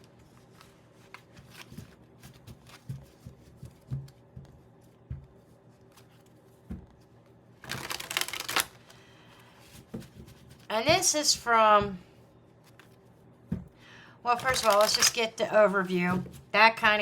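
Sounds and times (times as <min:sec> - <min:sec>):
cards shuffling: 0:00.1 - 0:05.0, 0:05.8 - 0:11.1, 0:12.6 - 0:13.1, 0:14.3 - 0:15.3
cards tapping and sliding: 0:14.4 - 0:15.2.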